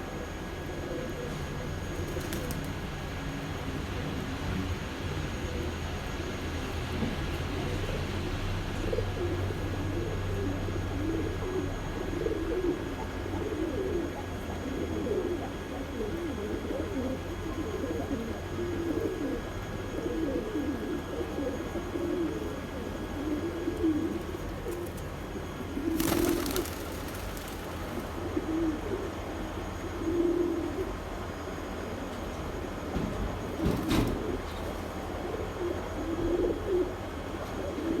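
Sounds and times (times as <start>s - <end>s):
pigeons cooing: 0.0s - 32.8s, 33.4s - 38.0s
steady low hum: 0.0s - 38.0s.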